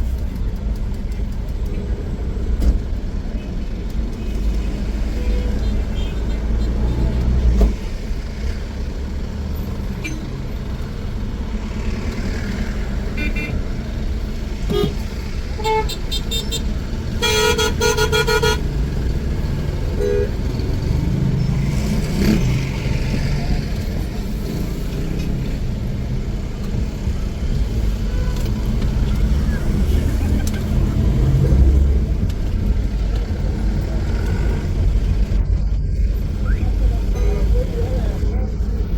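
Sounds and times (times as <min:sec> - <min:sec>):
traffic engine rumble: 0:00.0 - 0:38.9
car horns honking: 0:13.1 - 0:13.6, 0:14.7 - 0:18.8, 0:19.9 - 0:20.6.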